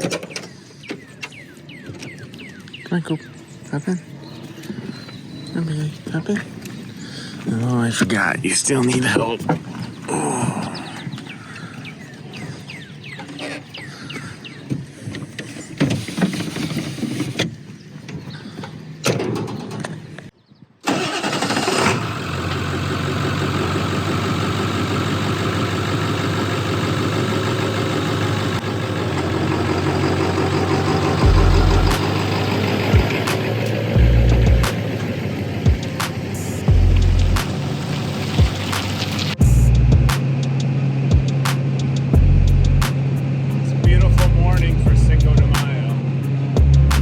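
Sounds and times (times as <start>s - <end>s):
road noise: 0.0s - 47.0s
truck engine running: 20.9s - 47.0s
deep low thud: 36.7s - 37.4s, 39.4s - 40.1s, 42.2s - 42.8s.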